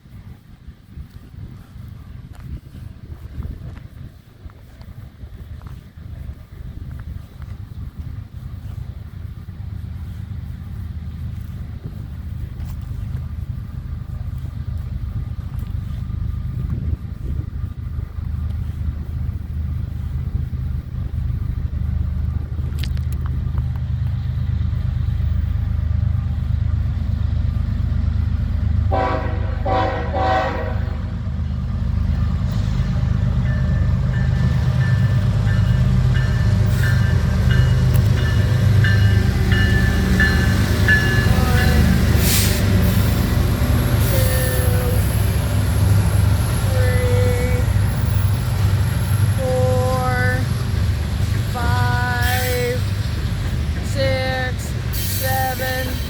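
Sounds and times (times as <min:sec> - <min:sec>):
locomotive engine rumble: 0:00.0 - 0:56.0
train air horn blasts: 0:28.9 - 0:31.1, 0:40.2 - 0:45.4.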